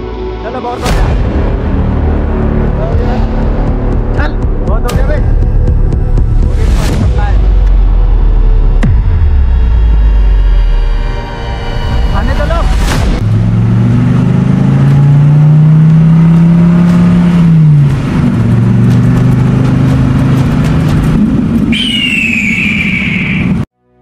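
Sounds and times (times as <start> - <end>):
car engine accelerating: 7.6 - 21.7
high falling squeal: 21.7 - 23.7.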